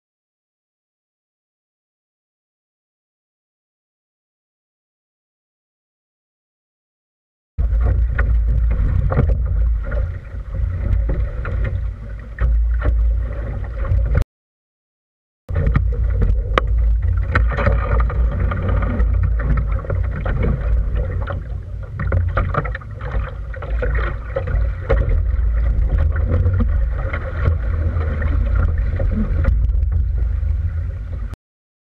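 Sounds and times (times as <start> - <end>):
boat clicks and knocks: 7.6 - 14.2, 15.5 - 30.7
water washing along hull: 7.6 - 14.2, 15.5 - 31.4
wind rumbling on microphone: 7.6 - 14.2, 15.5 - 31.4.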